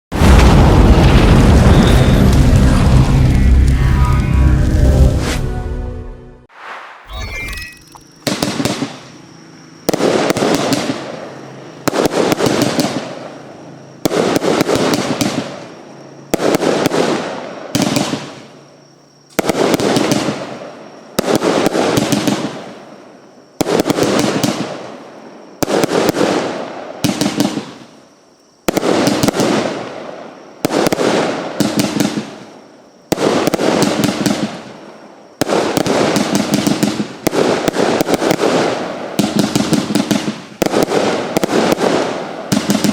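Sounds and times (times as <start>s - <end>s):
firework bangs with crackling: 0.1s - 3.8s, 8.2s - 9.1s, 9.9s - 13.4s, 14.0s - 15.7s, 16.3s - 18.5s, 19.3s - 22.9s, 23.5s - 28.0s, 28.6s - 42.9s.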